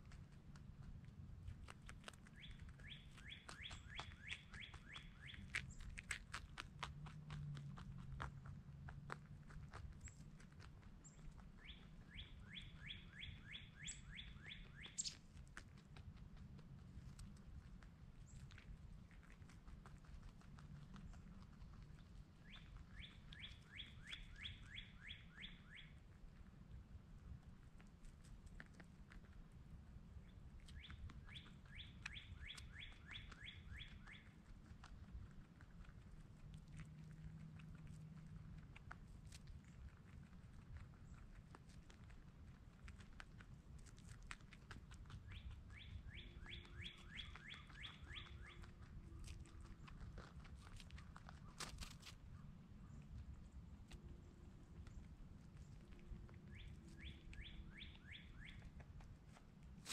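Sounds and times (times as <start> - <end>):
songbird whistling: 2.4 - 5.4, 11.6 - 15.2, 22.4 - 26.0, 30.7 - 34.3, 45.2 - 48.7, 56.4 - 58.8
songbird whistling rising notes: 45.3 - 48.6, 56.4 - 58.7.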